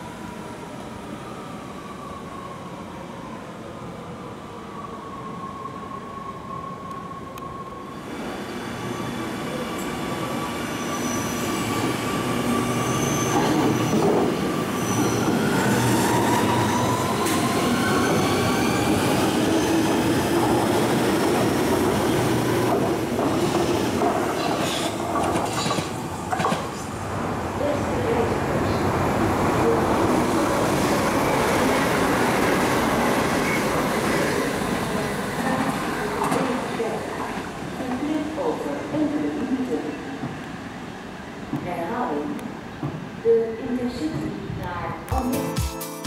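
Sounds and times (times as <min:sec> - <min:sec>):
metro train whining tones: 0:00.0 - 0:45.9.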